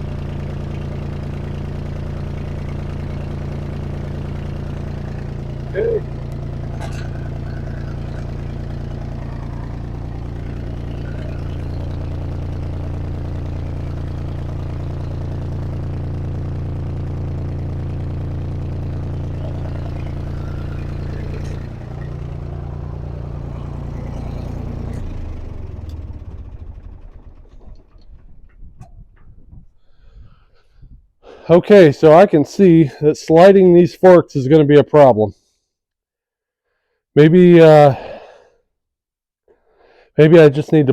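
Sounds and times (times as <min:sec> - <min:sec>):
tractor engine idling: 0:00.0 - 0:30.4
engine running down to a stop: 0:00.0 - 0:33.7, 0:37.3 - 0:38.4, 0:39.8 - 0:40.9.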